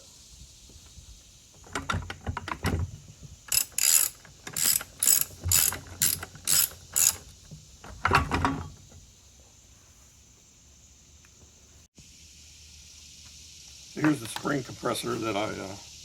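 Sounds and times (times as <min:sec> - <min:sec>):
ratchet wrench clicking: 0:03.5 - 0:07.3.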